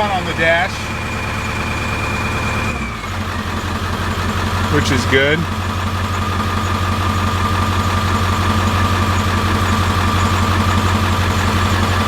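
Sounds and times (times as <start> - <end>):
diesel engine idling: 0.0 - 12.0
turbo whine: 4.7 - 5.7.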